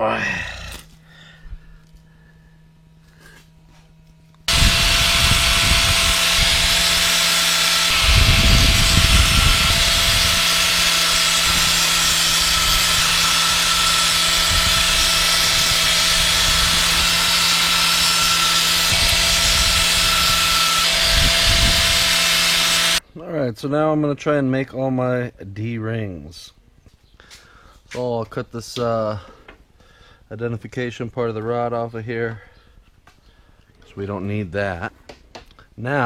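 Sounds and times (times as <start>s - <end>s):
electric power tool whining: 0.3s - 23.0s.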